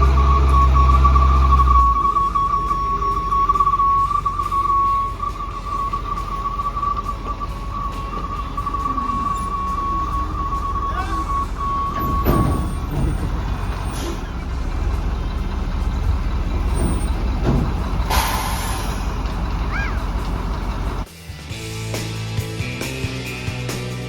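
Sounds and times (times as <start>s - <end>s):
high beeping tone: 0.0s - 13.0s
air brakes hissing: 0.0s - 14.4s, 16.6s - 20.5s
heavy truck engine running: 0.0s - 24.0s
music: 0.1s - 12.4s, 21.1s - 24.0s.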